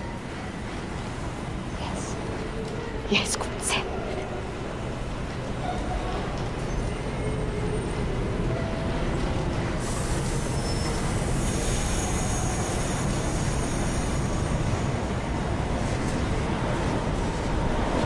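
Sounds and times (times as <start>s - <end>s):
subway train rumbling: 0.0s - 18.0s
wheel squeal: 10.4s - 14.3s.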